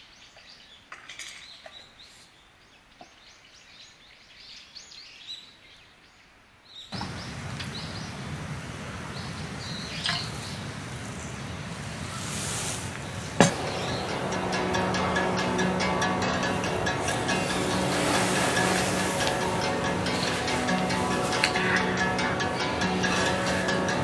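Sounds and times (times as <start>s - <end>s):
birds chirping: 0.0s - 24.0s
steady rushing noise: 7.0s - 24.0s.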